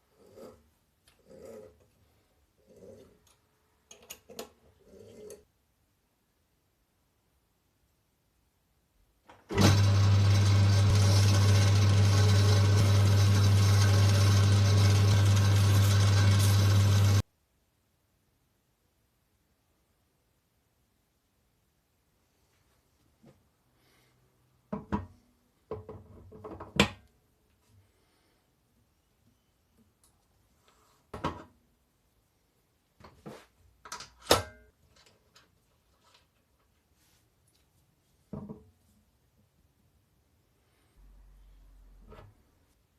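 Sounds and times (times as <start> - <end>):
electric machine hum: 9.5 - 17.2
objects knocking and clunking: 24.7 - 27.1, 31.1 - 31.6, 38.3 - 38.8.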